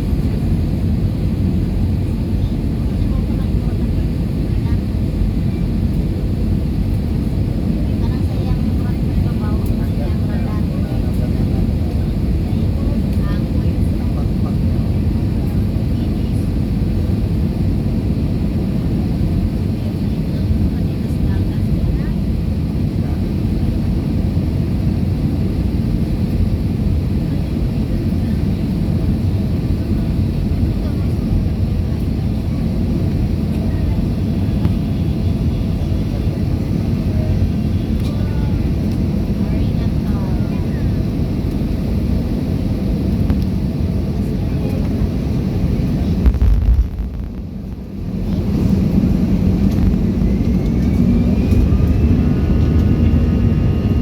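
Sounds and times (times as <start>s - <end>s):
jet engines in flight: 0.0s - 54.0s
engine whine rising in pitch: 48.7s - 54.0s.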